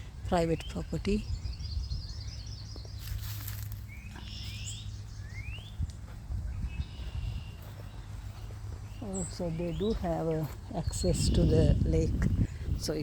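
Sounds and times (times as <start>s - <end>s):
songbirds chirping: 0.0s - 13.0s
steady low rumble: 0.0s - 13.0s.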